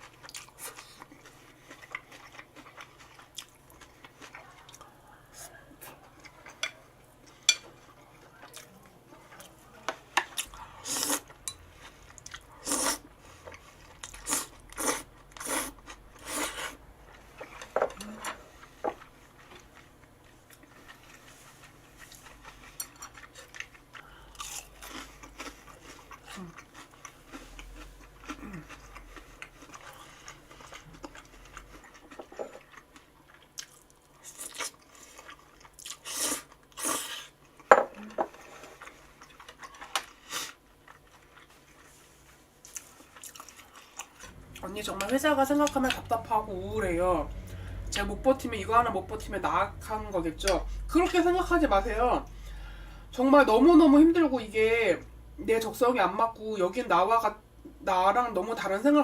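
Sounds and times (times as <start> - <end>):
quiet chewing: 0.0 - 46.1
crunching food: 19.0 - 37.7, 42.6 - 46.0.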